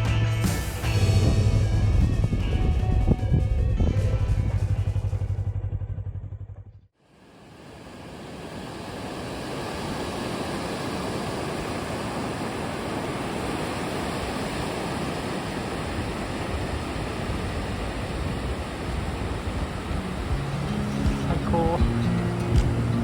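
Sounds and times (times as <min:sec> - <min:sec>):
surf washing onto beach: 0:07.1 - 0:23.0.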